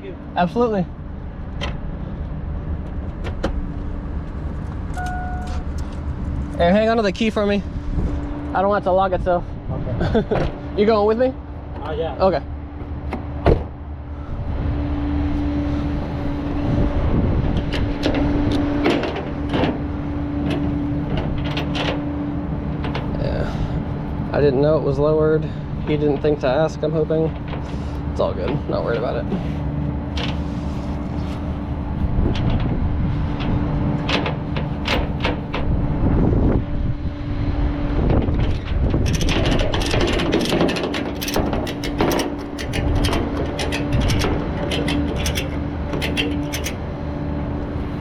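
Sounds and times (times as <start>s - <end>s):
truck engine running: 0.0s - 48.0s
short clicks and knocks: 39.1s - 46.8s.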